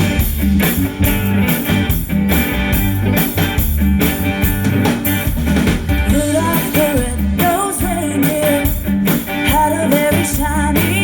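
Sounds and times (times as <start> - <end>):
drum kit hits: 0.0 - 7.2
bass guitar: 0.0 - 11.0
guitar: 0.0 - 11.0.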